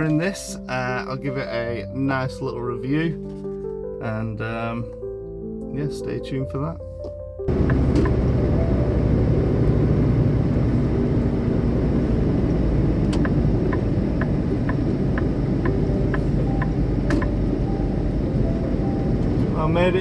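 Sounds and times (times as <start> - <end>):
truck engine and road rumble: 6.5 - 20.0.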